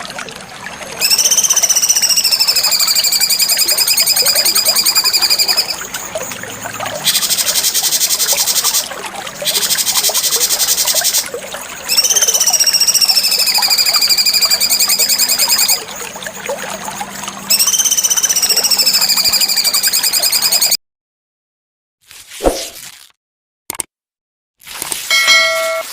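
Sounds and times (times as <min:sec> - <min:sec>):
bird whistling high notes: 0:01.0 - 0:05.8, 0:11.9 - 0:15.9, 0:17.5 - 0:20.7.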